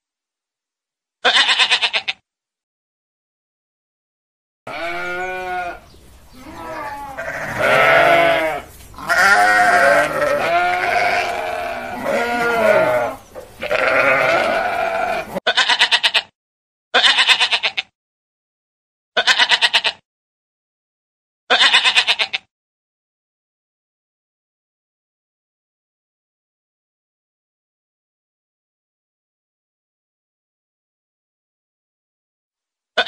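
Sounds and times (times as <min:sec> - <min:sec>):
goats and sheep bleating: 0:01.2 - 0:02.2, 0:04.7 - 0:16.3, 0:17.0 - 0:17.9, 0:19.2 - 0:20.0, 0:21.5 - 0:22.5.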